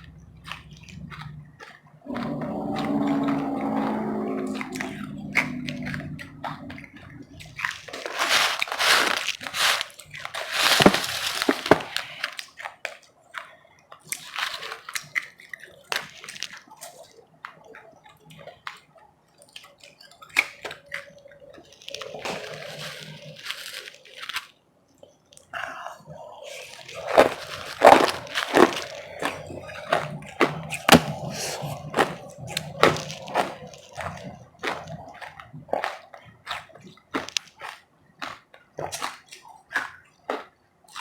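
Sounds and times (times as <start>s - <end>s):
chewing crunchy ice: 0.0s - 41.0s.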